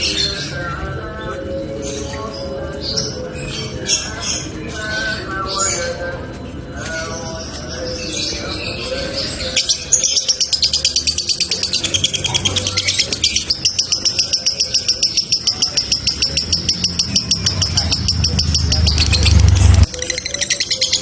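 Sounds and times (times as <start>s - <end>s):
lovebird chatter: 7.0s - 21.0s.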